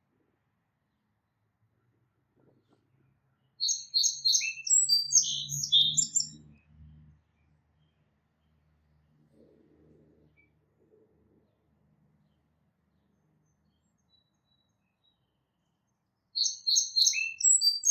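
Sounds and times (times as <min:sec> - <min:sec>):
small bird chirping: 0:02.6 - 0:06.7, 0:12.2 - 0:17.9.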